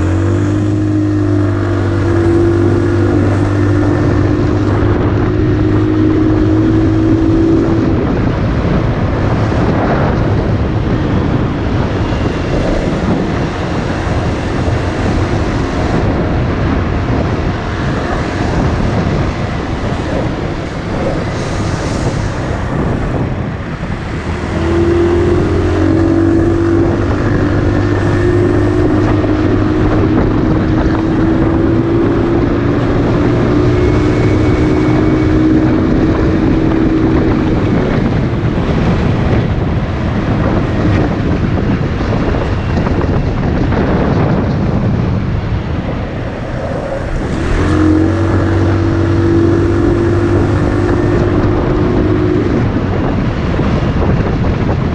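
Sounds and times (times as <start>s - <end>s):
motorcycle engine running: 0.0s - 54.9s
wind noise on microphone: 0.0s - 54.9s.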